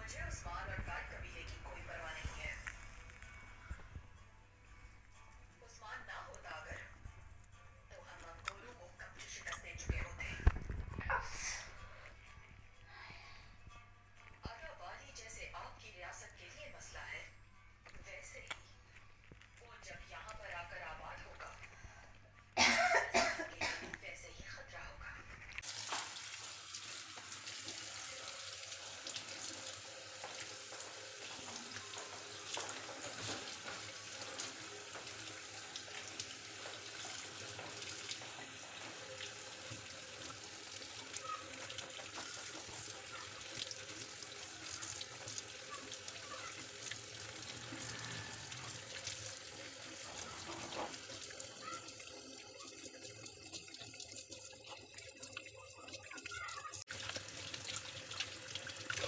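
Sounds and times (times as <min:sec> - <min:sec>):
tap water running into sink: 0:25.6 - 0:59.0.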